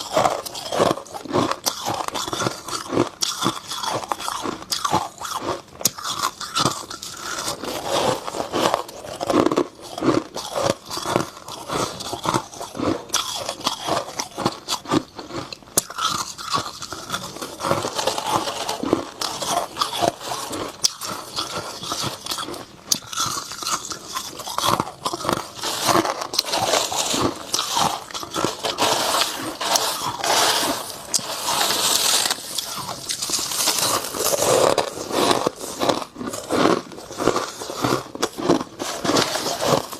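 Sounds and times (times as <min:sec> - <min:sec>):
crunching and chewing frost: 0:00.0 - 0:39.9.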